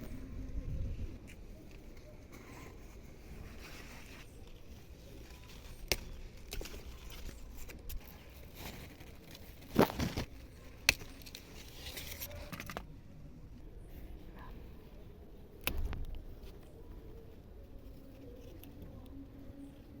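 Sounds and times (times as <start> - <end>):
okra pods snipped off plant: 5.6 - 12.8, 15.6 - 16.2.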